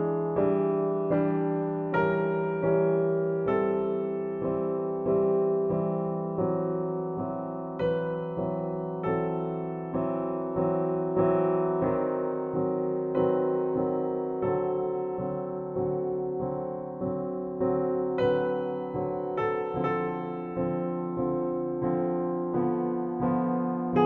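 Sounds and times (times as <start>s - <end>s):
gentle electric piano chords: 0.0s - 24.0s.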